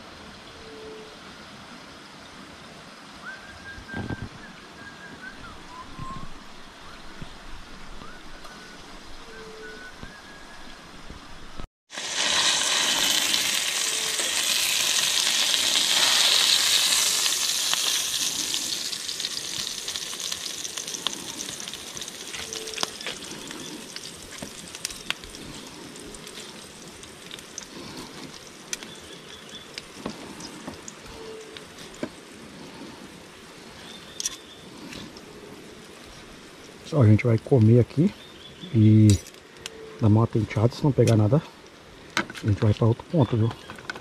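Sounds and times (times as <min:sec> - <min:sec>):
food frying in hot oil: 0:11.9 - 0:32.3
oil crackling and popping: 0:11.9 - 0:32.8.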